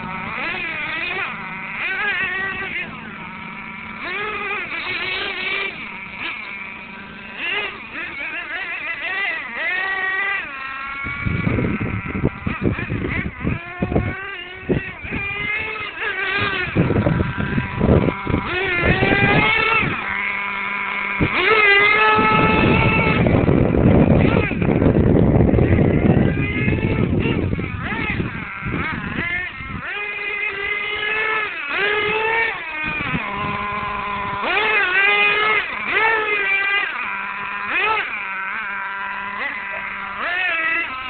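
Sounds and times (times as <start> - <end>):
small nitro engines revving: 0.0 - 41.0.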